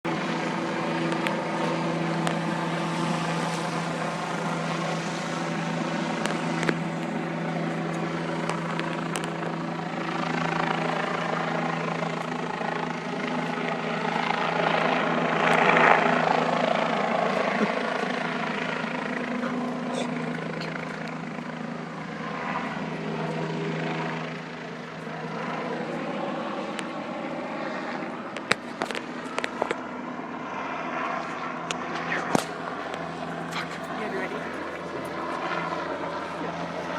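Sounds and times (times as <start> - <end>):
helicopter rotor drone: 0.0 - 36.9.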